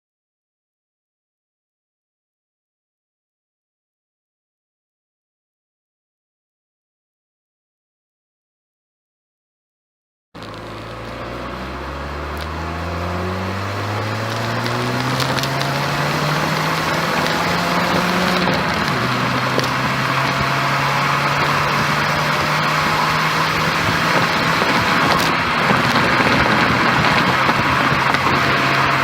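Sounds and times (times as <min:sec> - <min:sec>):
car engine accelerating: 0:10.4 - 0:29.0
road noise: 0:10.4 - 0:29.0.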